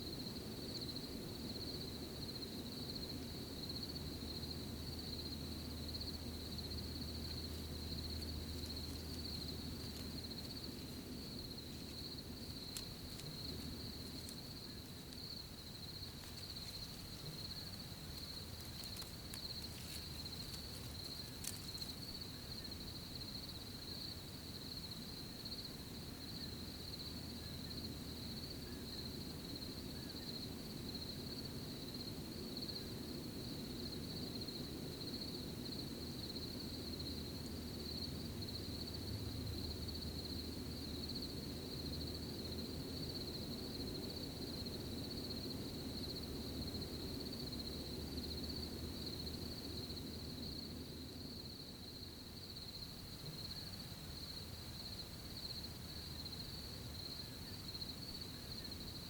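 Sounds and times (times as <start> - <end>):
crickets chirping: 0.0 - 59.0
faint clicks: 16.1 - 22.0.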